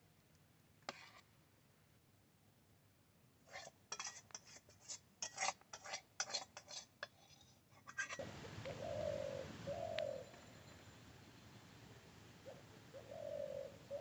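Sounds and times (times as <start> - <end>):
metal utensil scraping dishes: 3.5 - 8.2
dove cooing: 8.2 - 11.0, 12.3 - 14.0.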